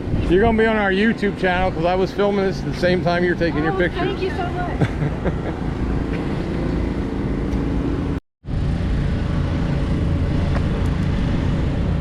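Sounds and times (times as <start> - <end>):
vehicle engines running: 0.0 - 12.0.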